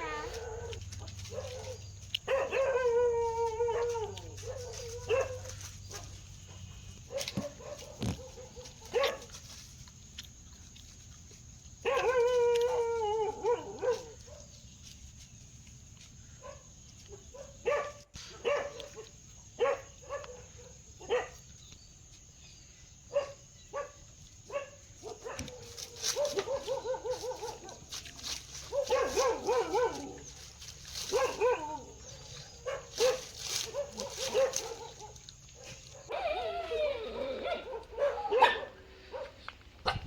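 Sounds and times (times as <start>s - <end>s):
dog howling call: 0.0s - 5.5s, 11.8s - 14.2s, 28.7s - 30.4s, 31.1s - 35.1s, 36.0s - 38.8s
dog barking: 0.1s - 2.9s, 3.7s - 9.4s, 11.8s - 12.3s, 13.4s - 14.5s, 16.4s - 21.4s, 23.1s - 27.9s, 28.6s - 30.3s, 31.1s - 36.4s, 37.1s - 40.0s.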